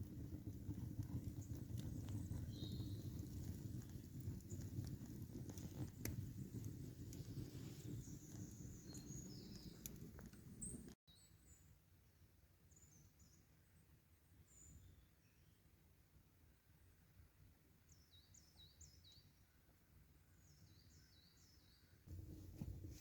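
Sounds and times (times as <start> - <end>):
campfire crackling and popping: 0.0 - 11.0, 22.1 - 23.0
small birds chirping: 0.2 - 11.7.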